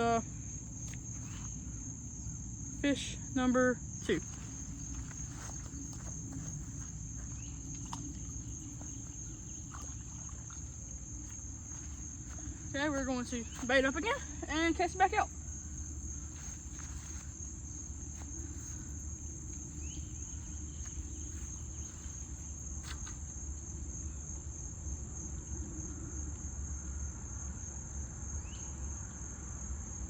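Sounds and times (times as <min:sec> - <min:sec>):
insects shrilling: 0:00.0 - 0:23.3.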